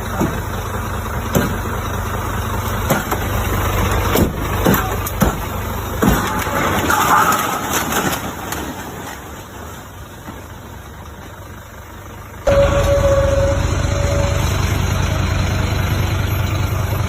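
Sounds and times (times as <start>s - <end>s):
truck diesel engine rumbling: 0.0s - 17.0s
brief whine: 12.5s - 15.2s.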